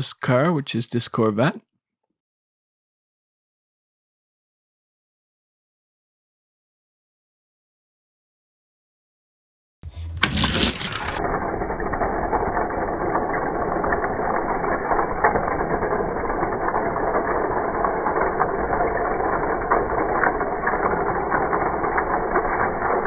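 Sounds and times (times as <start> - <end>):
toy cars rattling down track: 9.8 - 23.0.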